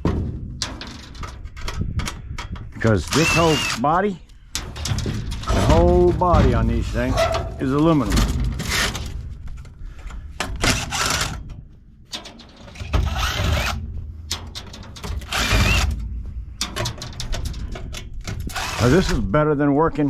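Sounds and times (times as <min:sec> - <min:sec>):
small metal clicks and rattles: 0:00.6 - 0:06.0, 0:07.2 - 0:19.2
power screwdriver running: 0:03.0 - 0:03.8, 0:10.7 - 0:11.4, 0:13.1 - 0:13.8, 0:15.3 - 0:15.9, 0:18.5 - 0:19.1.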